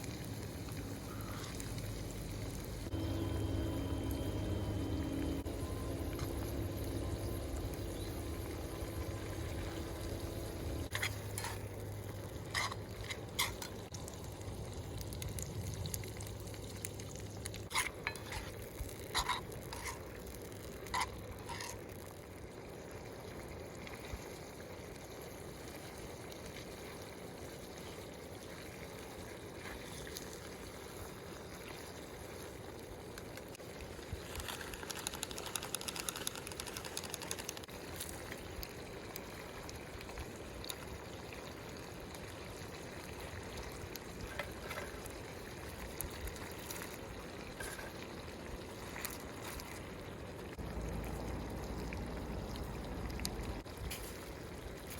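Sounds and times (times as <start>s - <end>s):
food simmering in a pan: 0.0s - 54.9s.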